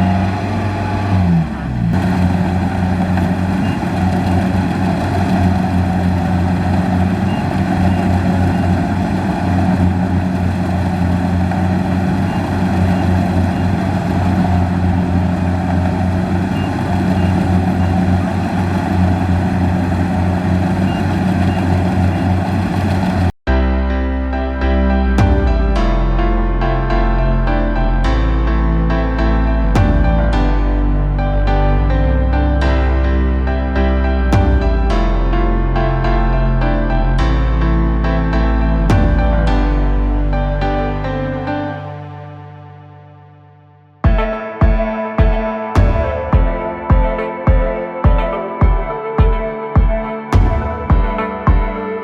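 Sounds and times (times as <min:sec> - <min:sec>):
machinery working clatter: 0:00.0 - 0:23.3
combine harvester diesel engine running: 0:00.0 - 0:23.4, 0:25.2 - 0:26.6, 0:28.2 - 0:41.6, 0:50.4 - 0:51.0.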